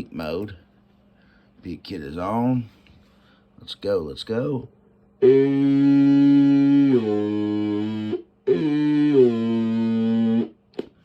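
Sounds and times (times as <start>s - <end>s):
man holding a steady note: 5.2s - 10.6s.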